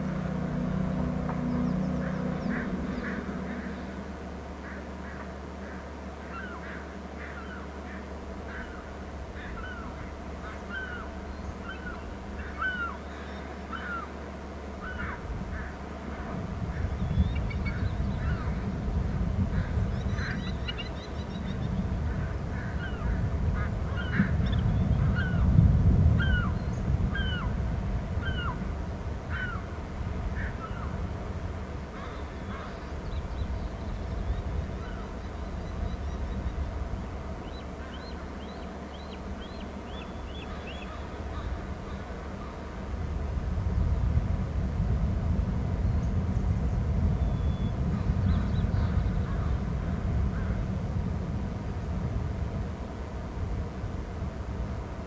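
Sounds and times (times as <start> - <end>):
birds calling: 0.0 - 18.7, 19.5 - 25.5, 26.2 - 27.6, 29.3 - 29.8, 30.4 - 31.0, 31.9 - 42.8
low rumbling noise: 0.0 - 55.0.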